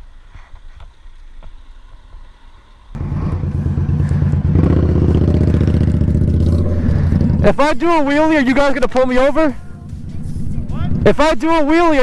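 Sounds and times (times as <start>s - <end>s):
motorcycle engine running: 3.0s - 12.0s.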